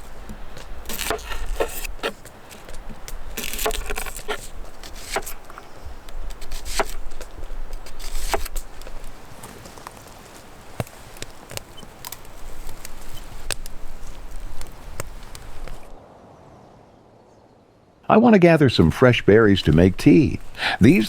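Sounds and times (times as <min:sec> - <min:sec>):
knife chopping vegetables: 0:00.0 - 0:05.5, 0:06.3 - 0:07.0, 0:07.8 - 0:08.6.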